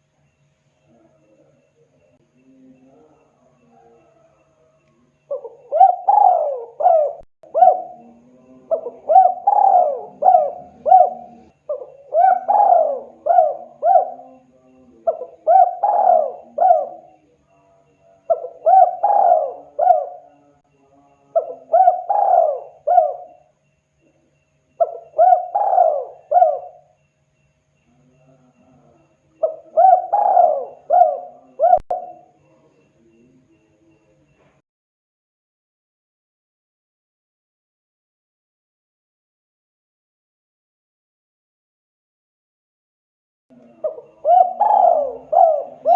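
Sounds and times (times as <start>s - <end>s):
dove cooing: 5.2s - 17.4s, 18.3s - 20.6s, 21.2s - 23.5s, 24.8s - 27.0s, 27.9s - 33.3s, 43.5s - 45.9s.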